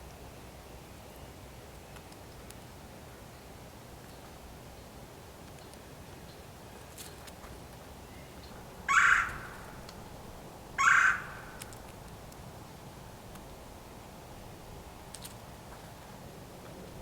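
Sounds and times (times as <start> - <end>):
blue jay harsh jeering calls: 8.9 - 9.8, 10.8 - 11.8.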